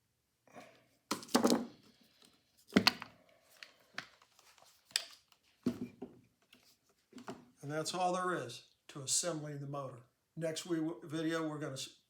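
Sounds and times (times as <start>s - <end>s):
knocks and clatter on workbench: 1.1s - 1.8s, 2.7s - 3.1s, 5.6s - 6.2s.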